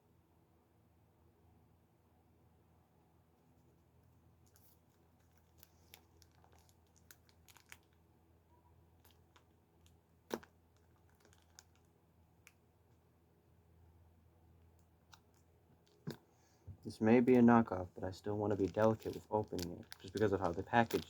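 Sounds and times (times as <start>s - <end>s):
plastic packaging crinkling: 4.4s - 8.0s, 9.0s - 12.6s, 16.9s - 21.0s.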